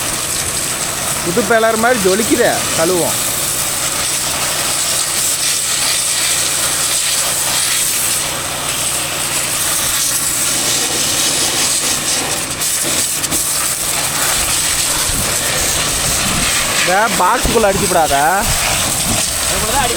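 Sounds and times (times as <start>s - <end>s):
motor humming: 0.0s - 7.5s, 8.2s - 19.9s
water spray hissing: 0.0s - 19.9s.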